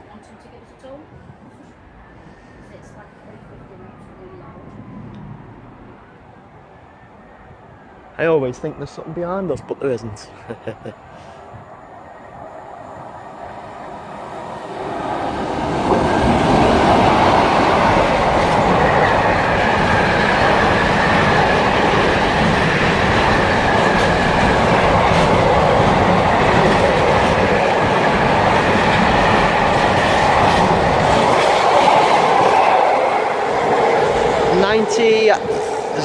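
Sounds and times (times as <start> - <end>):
freight train wheels rumbling on rail: 12.3 - 36.0.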